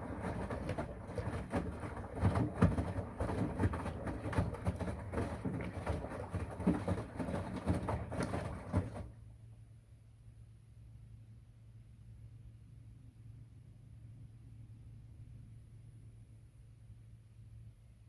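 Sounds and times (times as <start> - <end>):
washing machine drum tumbling: 0.0 - 9.2.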